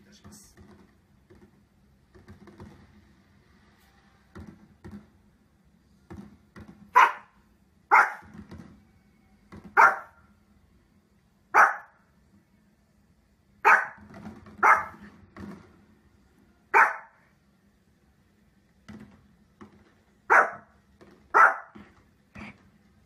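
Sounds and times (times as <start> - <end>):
small dog barking: 6.9 - 8.3, 9.7 - 10.2, 11.5 - 12.0, 13.6 - 14.0, 14.6 - 15.0, 16.7 - 17.2, 20.3 - 20.7, 21.3 - 21.8.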